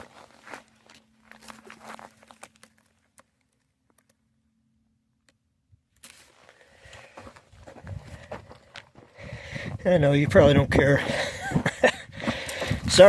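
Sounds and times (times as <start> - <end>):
footsteps crunching on gravel: 0.0 - 3.2, 6.0 - 13.0.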